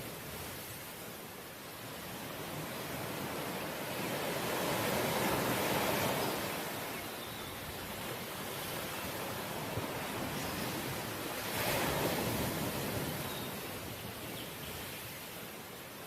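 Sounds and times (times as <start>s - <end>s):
ocean waves breaking: 9.0s - 13.9s.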